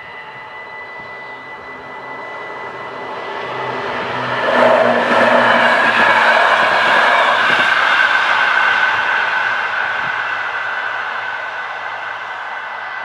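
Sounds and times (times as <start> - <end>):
low motor hum: 0.0 - 8.0
train wheels rushing on rails: 0.0 - 13.0.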